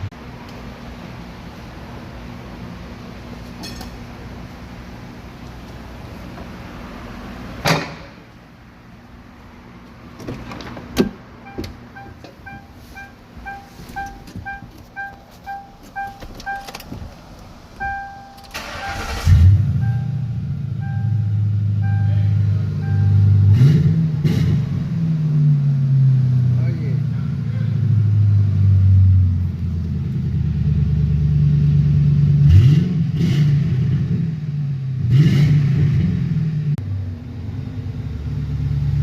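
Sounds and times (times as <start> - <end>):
car engine running: 8.8 - 32.7
car warning chime: 11.4 - 16.8, 17.8 - 23.5
engine cranking and starting: 17.8 - 20.1.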